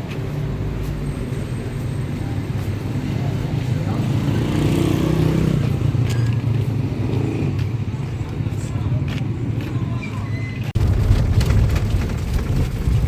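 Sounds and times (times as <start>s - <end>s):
road noise: 0.0s - 13.0s
vehicle engine running: 10.8s - 13.0s.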